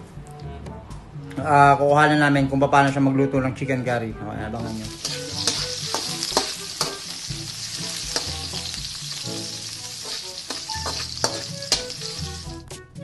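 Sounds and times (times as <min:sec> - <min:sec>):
onions sizzling in oil: 0:04.6 - 0:12.6
utensil scraping metal pan: 0:09.9 - 0:12.3.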